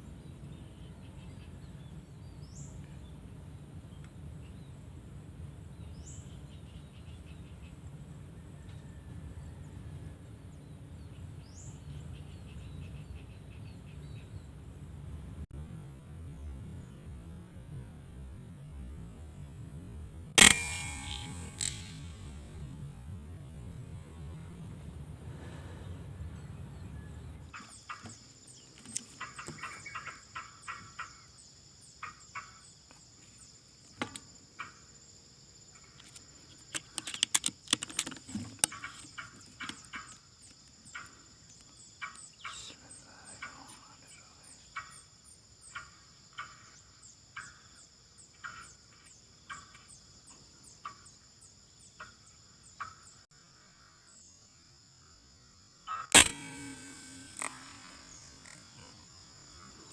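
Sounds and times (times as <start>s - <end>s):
high insect drone: 18.4s - 26.1s, 27.5s - 59.9s.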